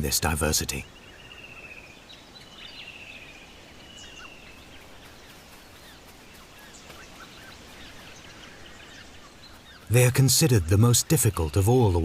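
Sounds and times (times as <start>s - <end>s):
birds calling: 0.0s - 12.0s
steady background hiss: 0.0s - 12.0s.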